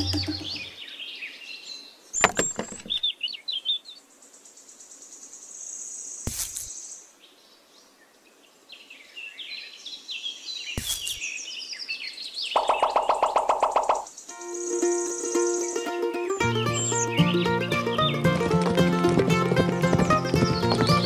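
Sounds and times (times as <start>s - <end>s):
small birds chirping: 0.0s - 21.0s
sharp knocks: 2.2s - 3.0s, 18.0s - 21.0s.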